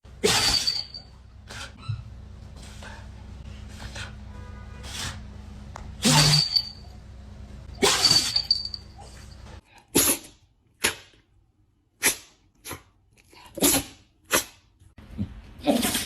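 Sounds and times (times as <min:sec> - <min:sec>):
dog sneezing: 0:00.2 - 0:00.8, 0:06.0 - 0:06.5, 0:07.8 - 0:08.3, 0:09.9 - 0:10.4, 0:13.5 - 0:14.6.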